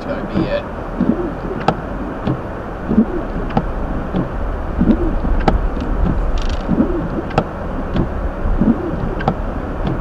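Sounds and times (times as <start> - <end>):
tyre and road noise: 0.0 - 10.0
windshield wipers sweeping: 0.0 - 10.0.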